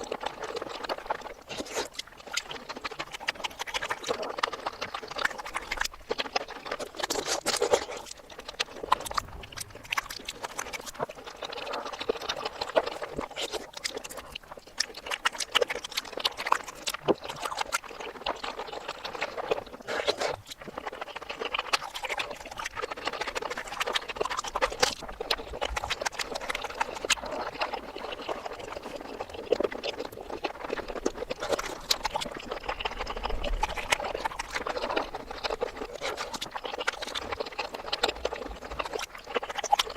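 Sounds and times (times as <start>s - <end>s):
mouth smacking: 0.0s - 39.9s
wet chewing: 0.0s - 39.9s.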